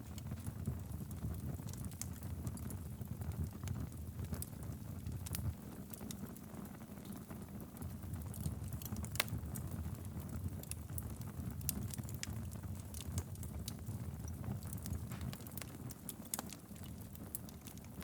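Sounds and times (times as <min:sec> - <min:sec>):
fire burning in fireplace: 0:00.0 - 0:18.0
logs crackling and popping: 0:00.0 - 0:18.0.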